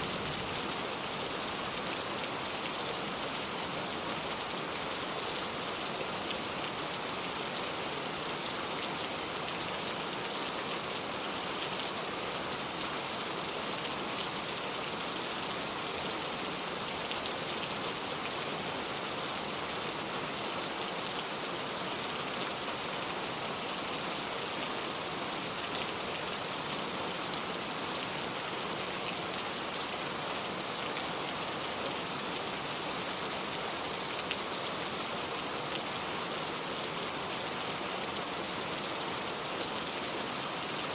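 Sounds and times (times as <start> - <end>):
heavy rain pouring: 0.0 - 10.5.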